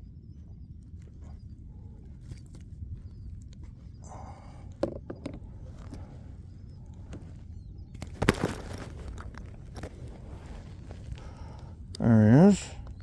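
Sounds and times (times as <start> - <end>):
low steady rumble: 0.0 - 13.0
knocks and clicks handling fish: 4.8 - 6.1.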